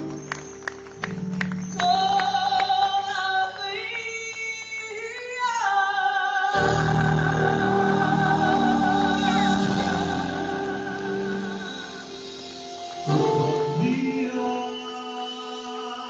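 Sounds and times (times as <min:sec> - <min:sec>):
musical accompaniment: 0:00.0 - 0:04.3, 0:06.5 - 0:16.0
person singing long notes: 0:05.1 - 0:16.0.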